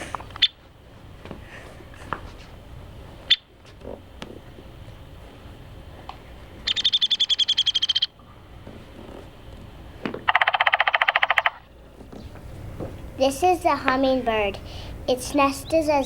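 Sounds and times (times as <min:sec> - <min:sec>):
woodpecker call: 0:06.7 - 0:08.1, 0:10.3 - 0:11.7
woodpecker rattling call: 0:06.7 - 0:08.1, 0:10.3 - 0:12.4.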